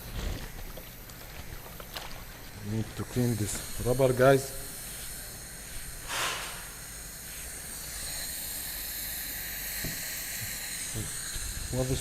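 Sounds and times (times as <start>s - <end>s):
pressurised cleaning jet hissing: 3.0s - 12.0s.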